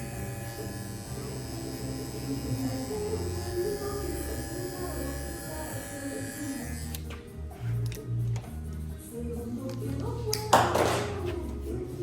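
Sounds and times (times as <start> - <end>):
electric hair clipper buzzing: 0.0 - 7.1
background music: 0.0 - 12.0.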